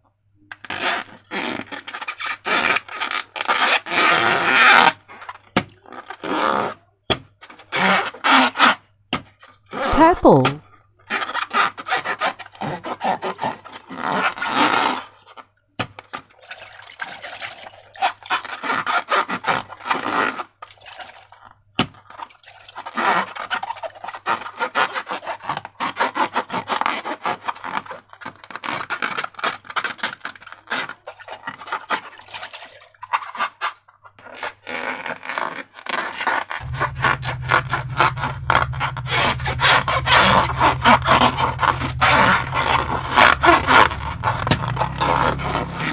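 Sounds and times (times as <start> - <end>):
slime crackling and scraping: 34.2 - 45.9.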